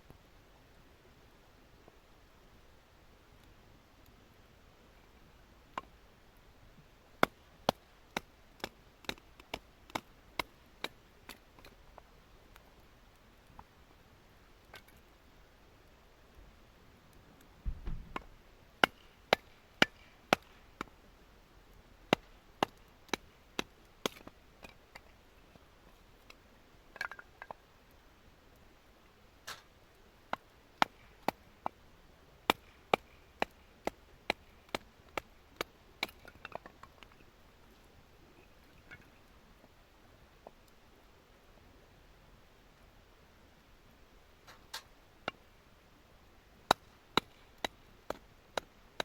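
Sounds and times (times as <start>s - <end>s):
sharp knocks on wood: 17.6s - 18.2s
dull thump: 17.6s - 18.3s.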